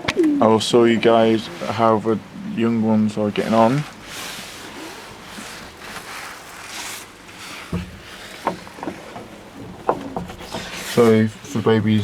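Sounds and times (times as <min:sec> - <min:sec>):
heavy rain hissing: 0:00.0 - 0:06.5.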